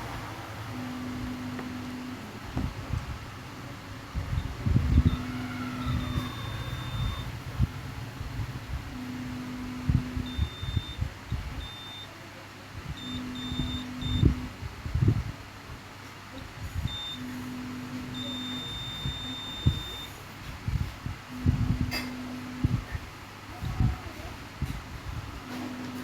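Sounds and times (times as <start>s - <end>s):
short high electronic beeps: 5.1s - 7.4s, 10.3s - 11.0s, 11.6s - 12.1s, 18.2s - 20.1s.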